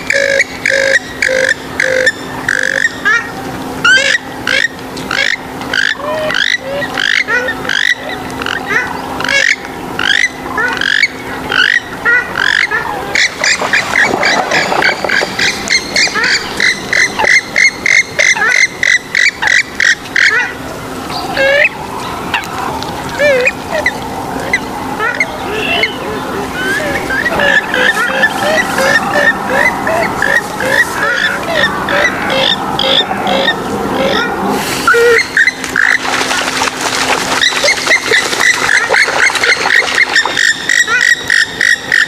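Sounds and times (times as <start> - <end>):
waterbird calls gliding in pitch: 0.0 - 42.0.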